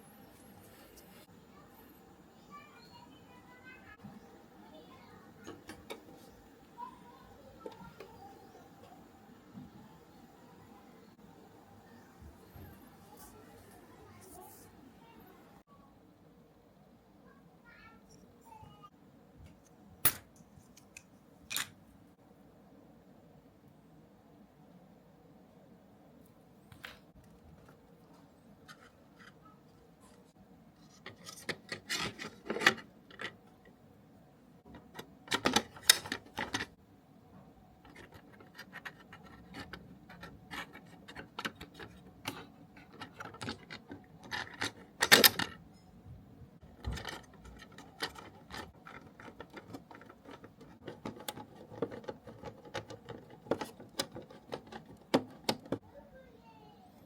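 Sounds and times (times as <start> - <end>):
small parts clicking and tapping: 30.9 - 33.8, 34.7 - 36.8, 37.8 - 45.9, 46.6 - 55.8.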